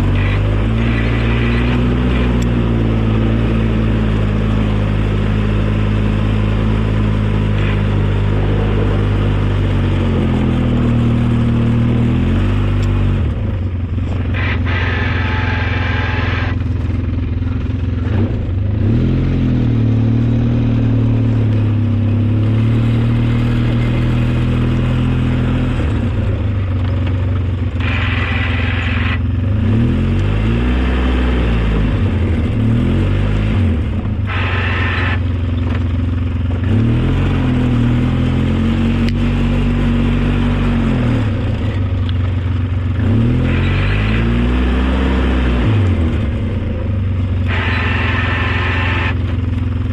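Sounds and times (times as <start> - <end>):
snow plow engine running: 0.0 - 49.9
higher-pitched noise: 47.5 - 49.3.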